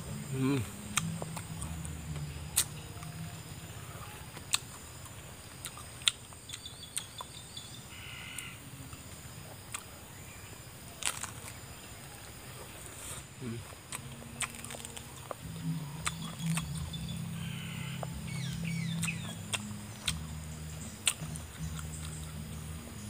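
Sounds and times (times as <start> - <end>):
chewing crunches and smacks: 0.9 - 3.1, 4.3 - 7.4, 9.7 - 9.9, 11.0 - 11.6, 13.6 - 17.1, 18.0 - 22.6
bird calling: 6.5 - 8.7, 14.2 - 23.0.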